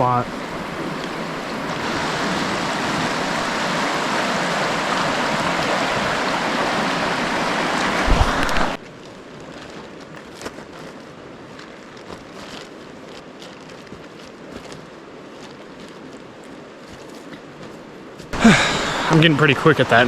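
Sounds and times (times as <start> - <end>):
faint clicks: 0.0 - 2.1
creek water flowing: 0.0 - 8.8, 18.4 - 20.0.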